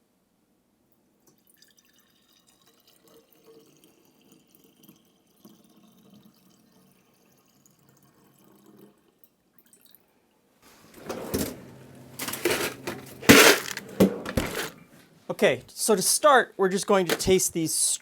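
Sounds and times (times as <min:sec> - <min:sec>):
liquid trickling and dripping: 0:01.2 - 0:10.2.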